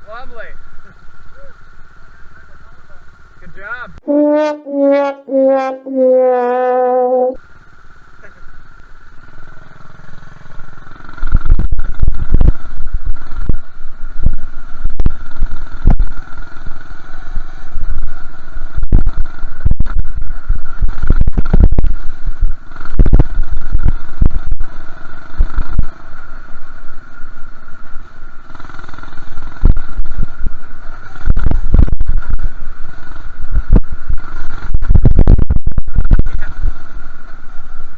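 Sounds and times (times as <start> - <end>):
minibike engine whining: 0.0 - 35.0
wind rumbling on microphone: 4.0 - 7.4, 11.0 - 37.9.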